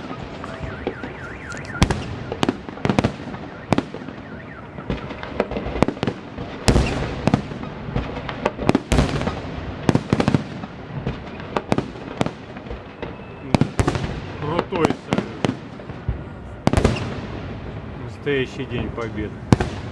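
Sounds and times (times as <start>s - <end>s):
fireworks bangs and cracks: 0.0s - 19.9s
fireworks crackling: 0.0s - 19.9s.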